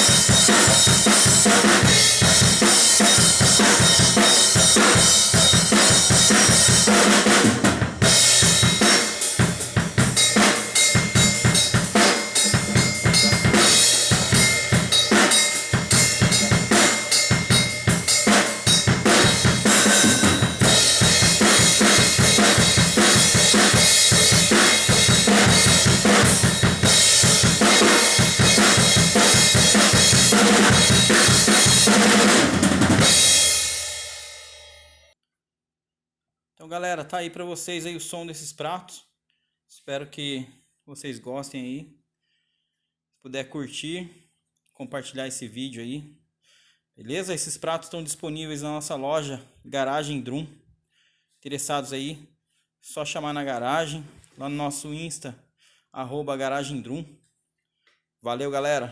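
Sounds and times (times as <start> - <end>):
snare drum: 0.0 - 9.6, 10.3 - 33.4
bass drum: 0.0 - 33.7
cymbals washing: 8.0 - 32.3.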